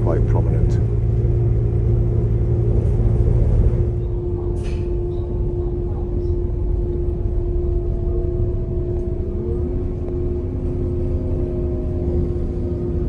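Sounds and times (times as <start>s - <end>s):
constant hum: 0.0s - 13.0s.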